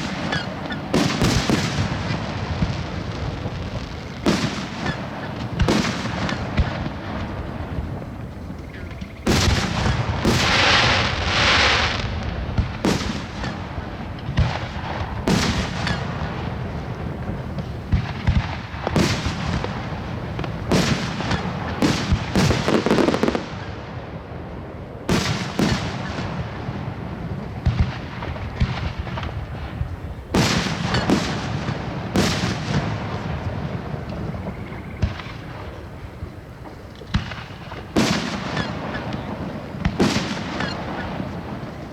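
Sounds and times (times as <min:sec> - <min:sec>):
fireworks crackling hiss: 0:00.0 - 0:24.2, 0:24.9 - 0:41.9
fireworks bursting with sharp bangs: 0:00.0 - 0:41.9.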